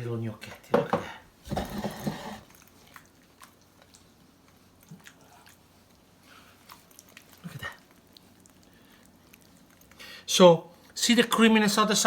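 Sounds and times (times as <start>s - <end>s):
wet squishing of dough and sauce: 2.4s - 12.0s.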